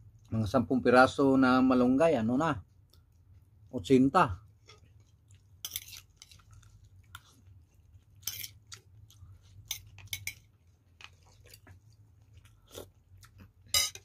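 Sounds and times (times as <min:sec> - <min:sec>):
person chewing food: 0:02.6 - 0:03.7, 0:04.4 - 0:13.8.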